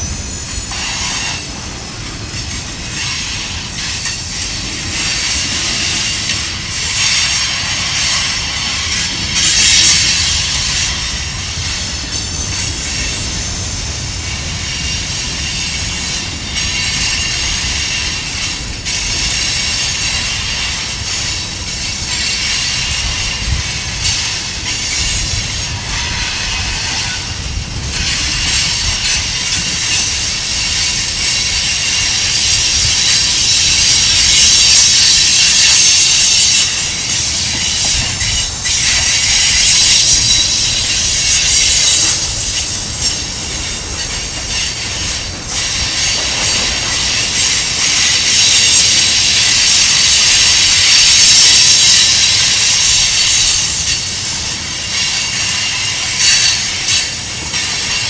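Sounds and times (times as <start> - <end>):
rail-joint clacks: 0.0 - 58.0
train rumbling: 0.0 - 58.0
wheel flanges squealing: 14.4 - 58.0.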